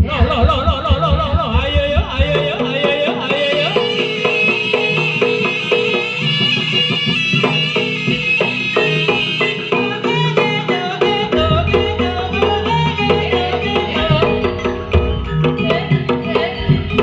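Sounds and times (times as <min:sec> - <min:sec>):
deep low tone: 0:00.0 - 0:02.5
shrill reed melody: 0:00.0 - 0:09.9
drum and gamelan percussion: 0:00.0 - 0:17.0.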